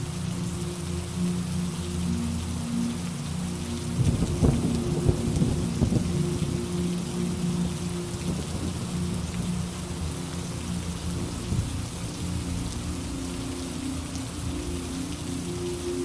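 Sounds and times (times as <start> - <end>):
steady rain hissing: 0.0 - 16.0
low rumble of thunder: 4.0 - 6.7.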